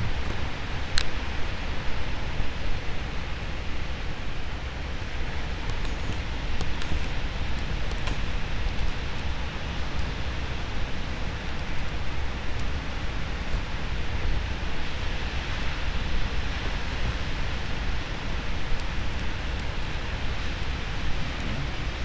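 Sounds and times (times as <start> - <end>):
wind buffeting microphone: 16.2 - 22.0.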